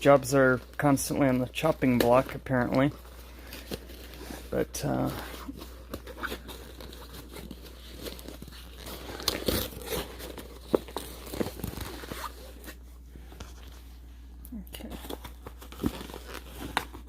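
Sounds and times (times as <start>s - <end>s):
low steady hum: 0.0s - 17.0s
cardboard package tearing open: 1.6s - 12.8s, 14.8s - 17.0s.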